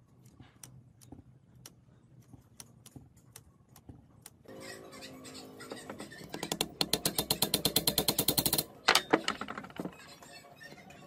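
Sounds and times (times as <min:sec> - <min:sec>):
rapid metallic clicking: 0:06.5 - 0:08.7.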